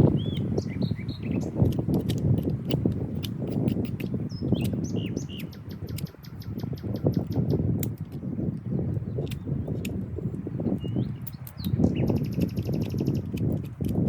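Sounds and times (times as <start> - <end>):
bird trill: 0.0 - 1.6, 4.3 - 7.6, 10.8 - 13.3
small birds chirping: 0.0 - 14.0.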